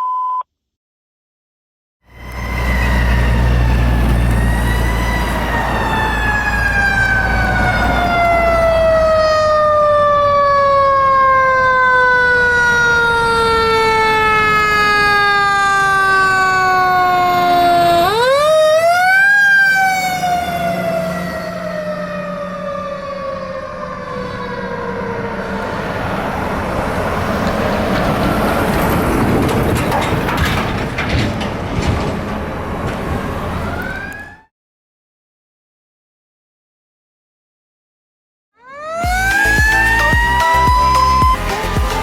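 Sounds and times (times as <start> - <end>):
fire engine siren wailing: 2.1 - 29.8, 33.3 - 34.5, 38.6 - 42.0.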